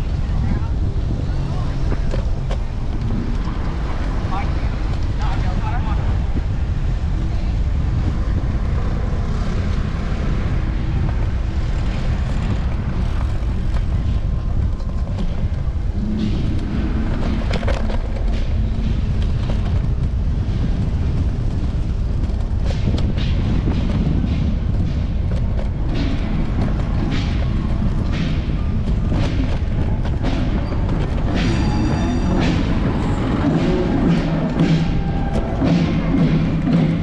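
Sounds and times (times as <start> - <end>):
low wind rumble: 0.0 - 37.0
scooter road noise: 0.0 - 37.0
sharp clicks and knocks: 11.1 - 37.0.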